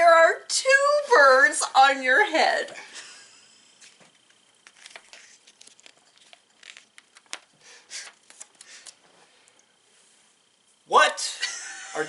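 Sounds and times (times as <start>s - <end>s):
paper pages rustling: 3.8s - 9.0s
page handling clicks: 4.6s - 9.0s.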